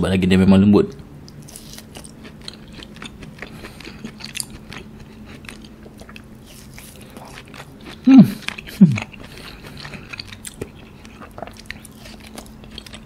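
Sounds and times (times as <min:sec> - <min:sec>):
wet chewing clicks: 0:00.9 - 0:13.0.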